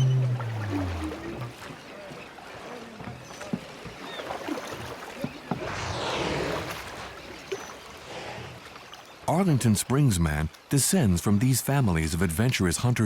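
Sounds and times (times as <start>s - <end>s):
water splashing and sloshing: 0.0s - 9.3s.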